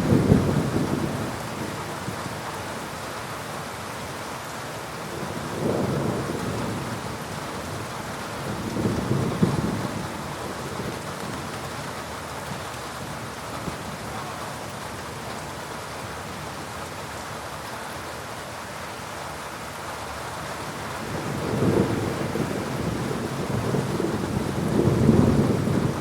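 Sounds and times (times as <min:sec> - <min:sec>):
thunder rumbling: 0:00.0 - 0:01.7, 0:08.4 - 0:11.5, 0:21.0 - 0:26.0
heavy rain: 0:00.0 - 0:26.0.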